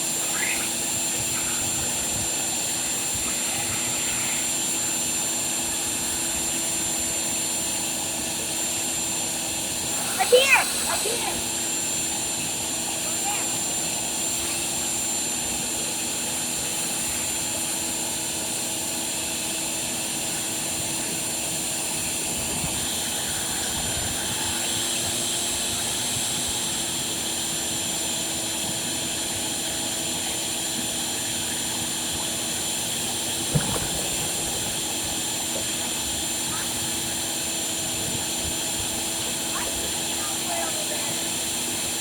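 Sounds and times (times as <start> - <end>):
machine droning with high whine: 0.0 - 42.0.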